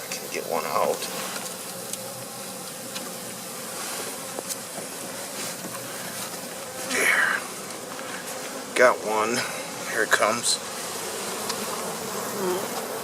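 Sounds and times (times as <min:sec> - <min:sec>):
honey bees buzzing: 0:00.0 - 0:13.0
hive frames clicking: 0:00.8 - 0:13.0.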